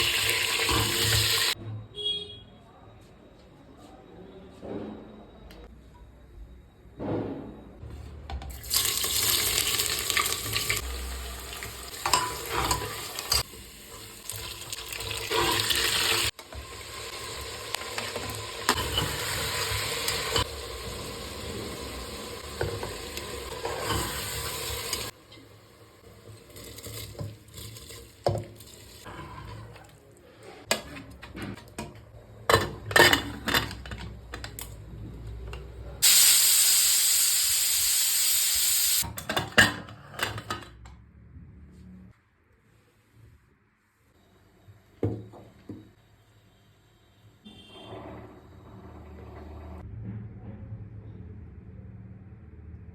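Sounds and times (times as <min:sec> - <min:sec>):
food sizzling in hot oil: 0:00.0 - 0:01.6, 0:08.6 - 0:25.2, 0:36.0 - 0:39.0.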